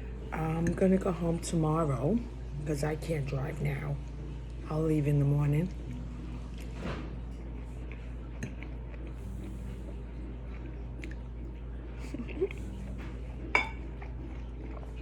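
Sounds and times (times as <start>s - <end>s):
steady low hum: 0.0s - 15.0s
chewing and mouth clicks: 6.4s - 15.0s.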